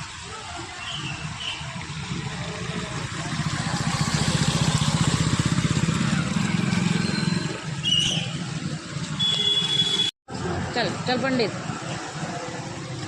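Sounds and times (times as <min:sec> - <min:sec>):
vehicle engine passing: 0:02.0 - 0:07.8.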